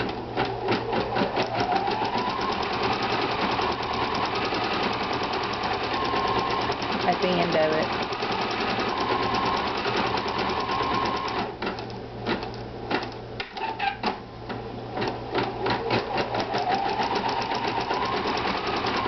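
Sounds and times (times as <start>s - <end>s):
sewing machine motor whine: 0.0s - 11.5s, 15.4s - 19.0s.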